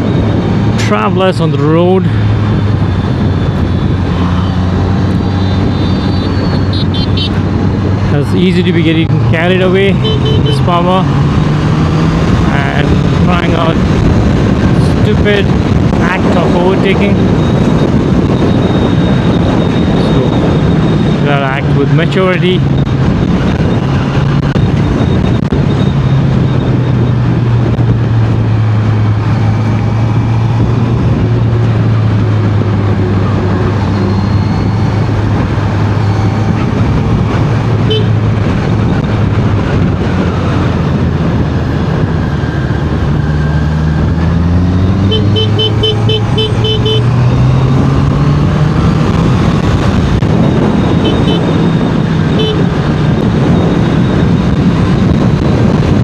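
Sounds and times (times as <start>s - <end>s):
wind rush: 0.0s - 56.0s
vehicle horn toots: 5.4s - 7.4s, 10.0s - 10.6s, 37.9s - 38.2s, 45.0s - 47.1s, 51.0s - 51.5s, 52.3s - 52.7s
motorcycle engine running: 9.3s - 14.6s, 22.6s - 56.0s.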